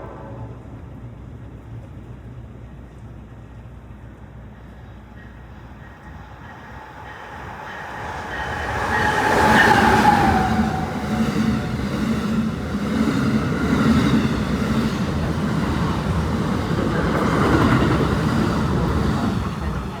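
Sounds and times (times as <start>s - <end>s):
passenger train passing: 0.0s - 20.0s
rhythmic clatter of train cars: 0.0s - 20.0s.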